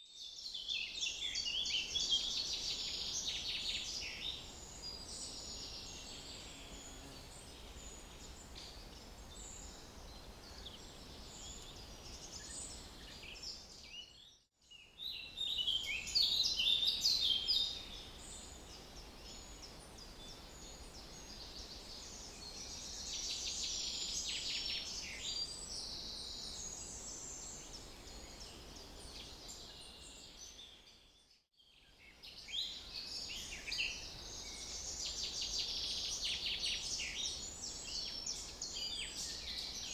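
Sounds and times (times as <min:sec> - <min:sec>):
faint steady hiss: 0:00.3 - 0:13.9.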